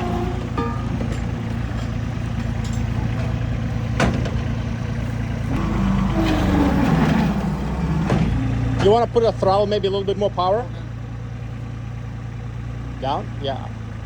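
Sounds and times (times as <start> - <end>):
sharp clunk: 0.0 - 4.6
diesel engine running: 0.0 - 14.0.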